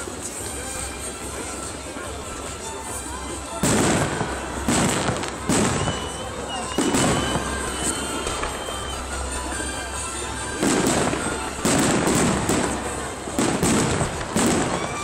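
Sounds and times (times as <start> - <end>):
distant firework bangs and crackle: 3.5 - 8.8, 10.4 - 15.0
loud firework bangs: 3.6 - 8.5, 10.6 - 15.0.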